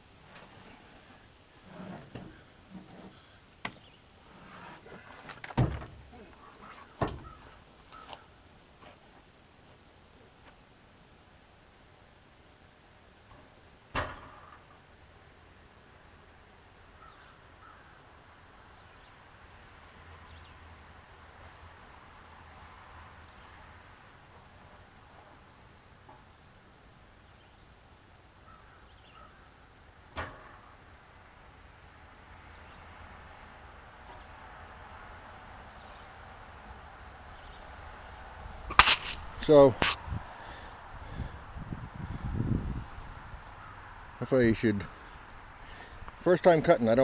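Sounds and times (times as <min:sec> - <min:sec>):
faint bird calls: 0:06.1 - 0:08.4, 0:16.9 - 0:18.3, 0:28.4 - 0:29.6
light hiss: 0:21.1 - 0:41.2.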